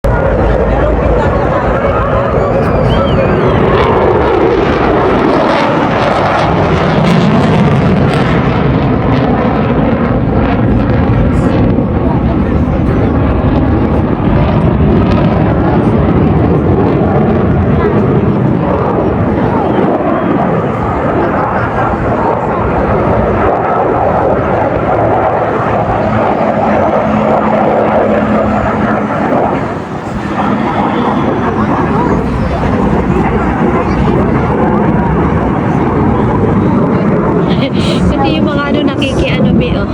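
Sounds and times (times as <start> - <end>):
airplane engine flying past: 0.0 - 39.9
steady hum: 0.0 - 39.9.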